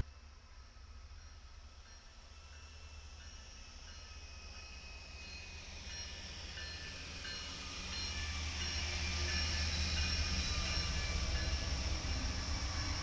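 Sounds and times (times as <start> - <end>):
diesel locomotive engine rumble: 0.0 - 13.0
wheels hissing on rails: 0.0 - 13.0
thin high wheel squeals: 4.0 - 13.0.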